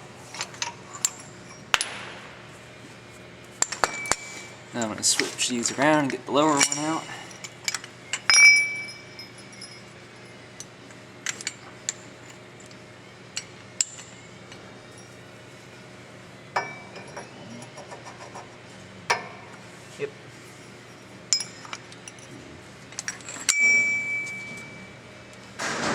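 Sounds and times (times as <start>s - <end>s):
steel parts clinking: 0.3s - 2.0s, 3.5s - 15.2s, 20.5s - 25.6s.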